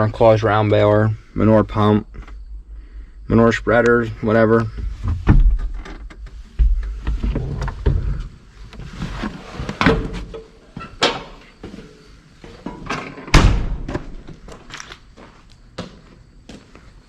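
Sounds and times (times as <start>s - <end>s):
low rumble: 2.0s - 5.8s
knocks and thuds: 4.7s - 8.2s.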